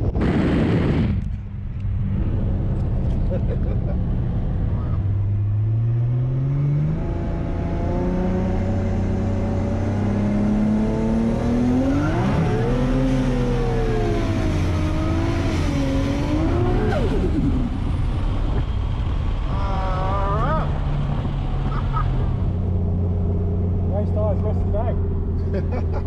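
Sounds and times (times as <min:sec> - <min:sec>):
tyre and road noise: 0:00.0 - 0:26.0
turbocharged engine revving: 0:05.2 - 0:25.9.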